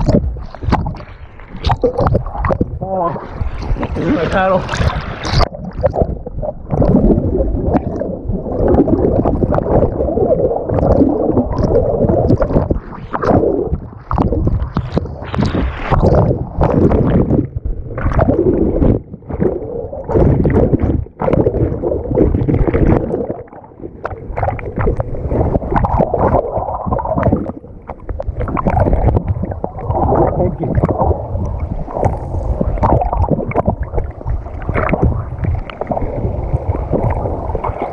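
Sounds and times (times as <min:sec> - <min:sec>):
muffled underwater rapids rumbling: 0:00.0 - 0:37.9.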